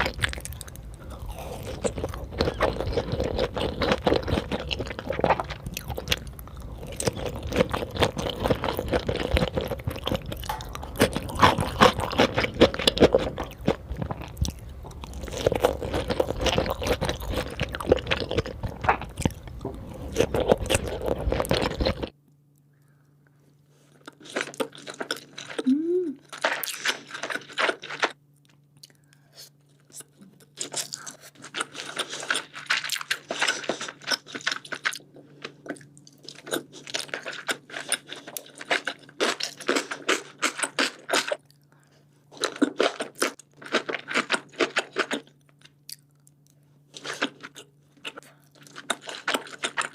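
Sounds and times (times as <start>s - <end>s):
close chewing with wet clicks: 0.0s - 19.6s, 42.4s - 49.9s.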